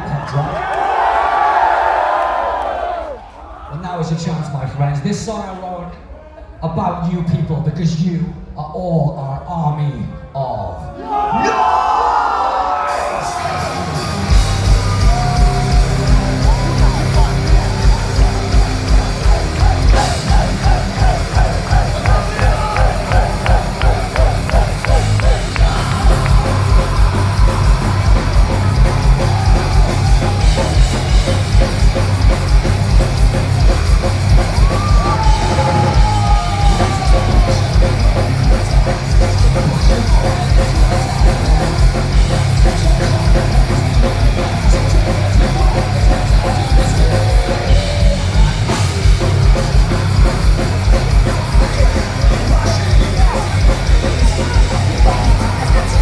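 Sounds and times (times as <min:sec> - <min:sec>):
drum kit with fast kick drum: 0:13.0 - 0:56.0
distorted electric guitars: 0:13.2 - 0:56.0.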